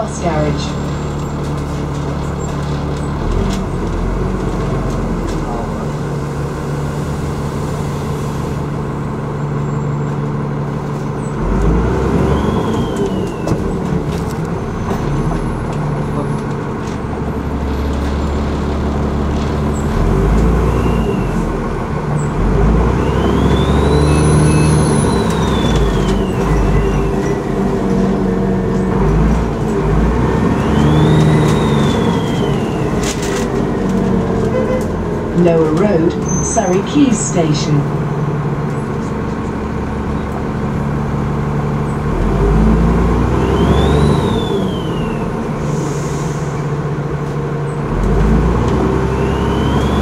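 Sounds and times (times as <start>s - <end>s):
bus diesel engine pulling away: 0.0s - 50.0s
turbocharger whistle: 12.1s - 13.5s, 20.6s - 21.5s, 22.9s - 27.4s, 30.4s - 33.4s, 43.4s - 46.3s, 49.1s - 50.0s.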